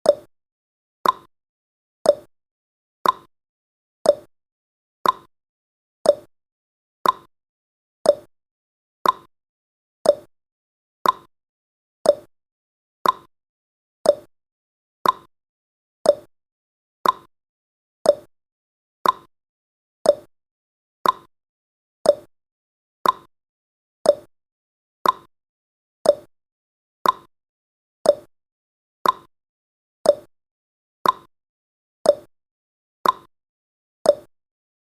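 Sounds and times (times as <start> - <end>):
timer ticking clicks: 0.0 - 0.3, 1.0 - 1.3, 2.0 - 2.3, 3.0 - 3.3, 4.0 - 4.3, 5.0 - 5.3, 6.0 - 6.3, 7.0 - 7.3, 8.0 - 8.3, 9.0 - 9.3, 10.0 - 10.3, 11.0 - 11.3, 12.0 - 12.3, 13.0 - 13.3, 14.0 - 14.3, 15.0 - 15.3, 16.0 - 16.3, 17.0 - 17.3, 18.0 - 18.3, 19.0 - 19.3, 20.0 - 20.3, 21.0 - 21.3, 22.0 - 22.3, 23.0 - 23.3, 24.0 - 24.3, 25.0 - 25.3, 26.0 - 26.3, 27.0 - 27.3, 28.0 - 28.3, 29.0 - 29.3, 30.0 - 30.3, 31.0 - 31.3, 32.0 - 32.3, 33.0 - 33.3, 34.0 - 34.3.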